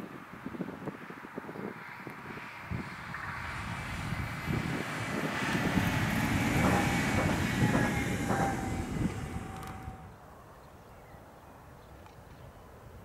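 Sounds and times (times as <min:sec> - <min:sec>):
train wheels rumbling on track: 0:02.7 - 0:10.2.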